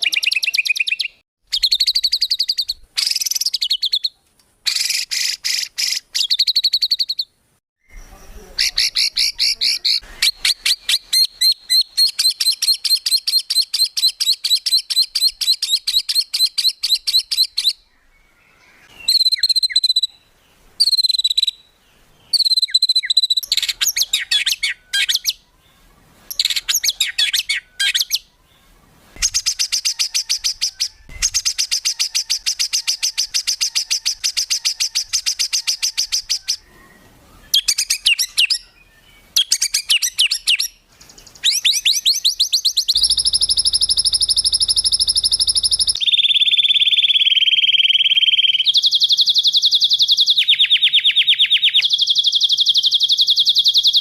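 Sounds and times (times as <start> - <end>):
songbird trills: 0.0 - 54.0.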